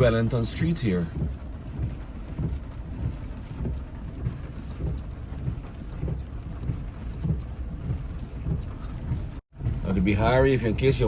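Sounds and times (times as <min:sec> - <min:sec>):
car engine and road noise: 0:00.0 - 0:11.0
soft thumps: 0:01.1 - 0:09.8.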